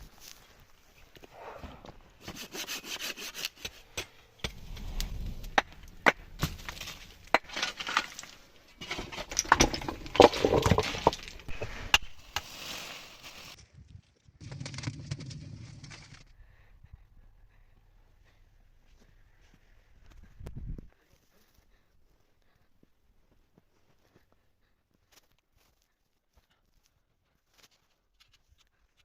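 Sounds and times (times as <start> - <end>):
scraping and sawing wood: 2.2 - 4.6, 5.6 - 13.6
wood cracks and knocks: 6.0 - 12.6.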